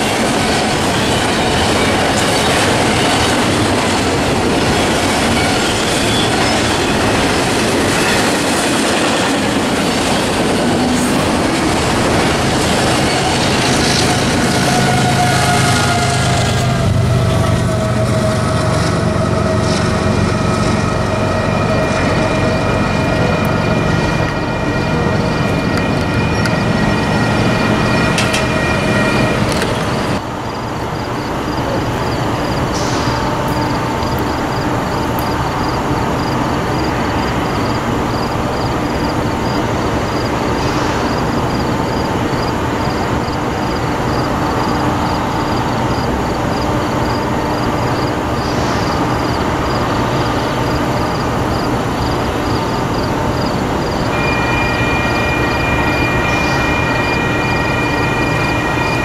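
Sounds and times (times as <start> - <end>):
train rumbling: 0.0 - 59.0
held chord of tones: 54.1 - 59.0.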